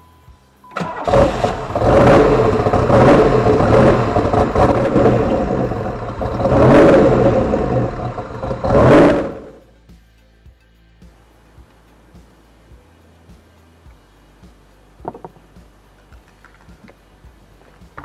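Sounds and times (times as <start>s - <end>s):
car engine revving: 0.8s - 9.6s.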